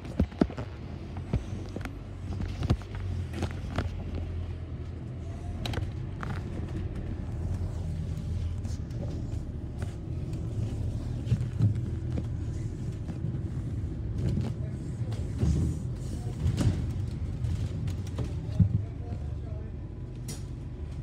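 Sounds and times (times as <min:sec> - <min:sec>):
bus engine and road rumble: 0:00.0 - 0:21.0.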